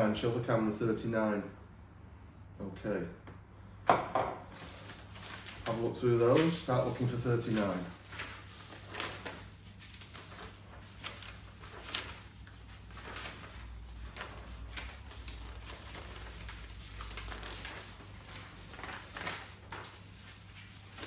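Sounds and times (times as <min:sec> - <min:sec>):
paper rustling: 0:04.5 - 0:21.0.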